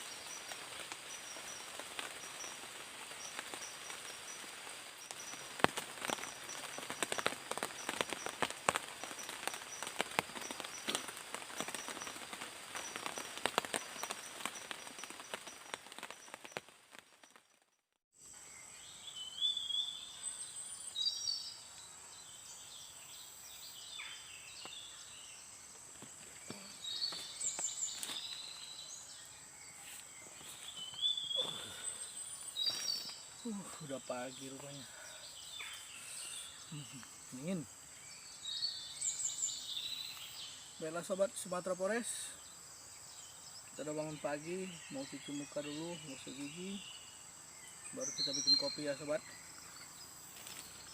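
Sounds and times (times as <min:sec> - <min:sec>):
heavy rain falling: 0:00.0 - 0:17.2
insect drone: 0:00.0 - 0:17.6, 0:18.2 - 0:50.9
insect trill: 0:00.0 - 0:17.6, 0:18.2 - 0:50.9
forest birds chirping and whistling: 0:00.0 - 0:50.9.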